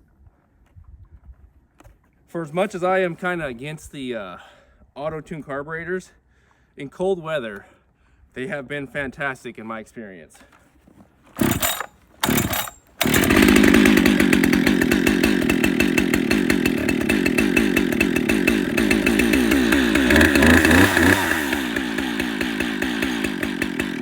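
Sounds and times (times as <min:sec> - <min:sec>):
chainsaw engine running: 0:11.4 - 0:24.0
starter cord pulls: 0:11.4 - 0:24.0.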